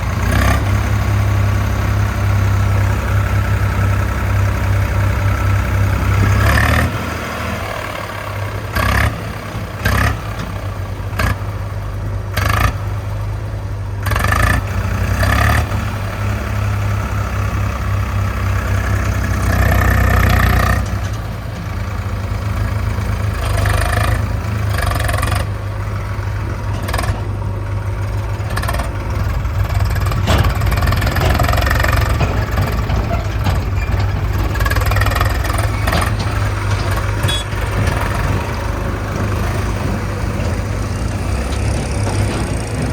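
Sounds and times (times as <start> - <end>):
heavy diesel machinery running: 0.0 - 42.9
knocks and clanks: 26.1 - 42.9.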